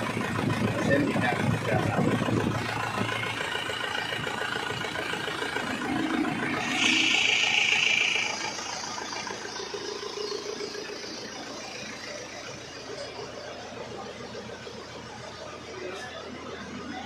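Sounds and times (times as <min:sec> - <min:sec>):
diesel engine idling: 0:00.0 - 0:17.0
rush of noise: 0:05.7 - 0:09.4.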